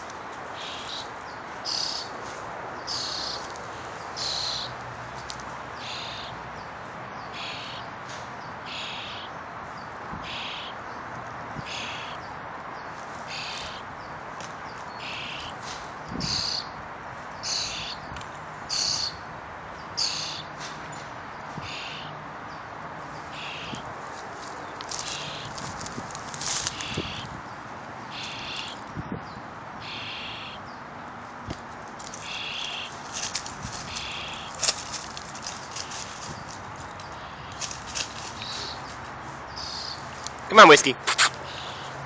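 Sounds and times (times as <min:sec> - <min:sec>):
baby bird chirping: 0:01.7 - 0:02.1.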